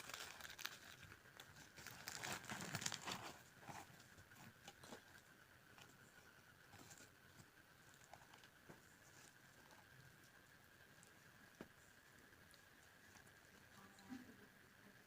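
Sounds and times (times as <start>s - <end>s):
food crinkling and tearing: 0.0s - 5.9s
small crackles: 0.0s - 14.2s.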